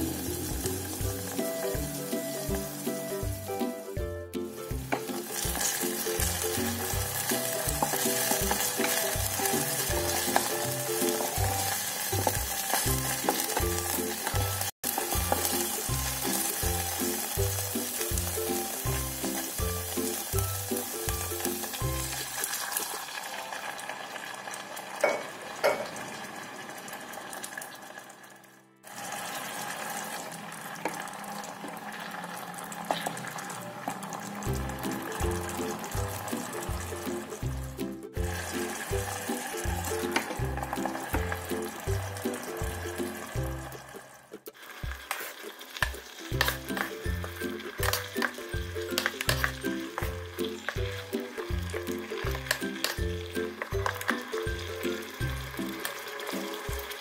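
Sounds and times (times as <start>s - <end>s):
background music with beat: 0.0s - 22.3s, 34.5s - 43.9s, 46.3s - 57.0s
food sizzling in oil: 0.0s - 57.0s.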